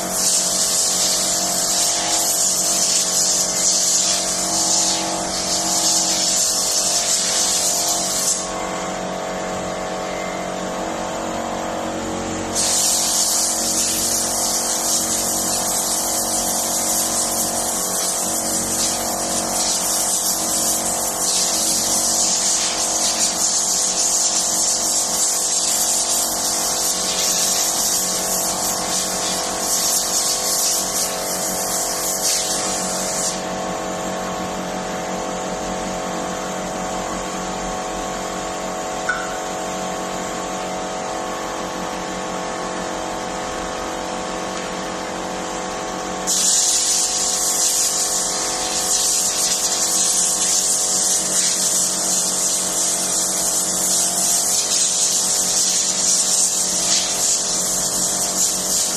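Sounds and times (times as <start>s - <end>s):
sprayer motor running: 0.0s - 9.7s, 10.4s - 34.5s, 35.9s - 58.9s
loud high spray hiss: 12.6s - 33.4s, 46.3s - 58.9s.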